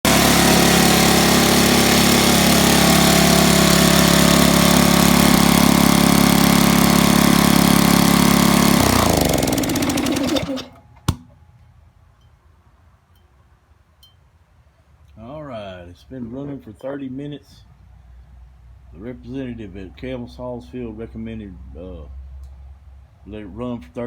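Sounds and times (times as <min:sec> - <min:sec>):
air compressor running: 0:00.0 - 0:11.2.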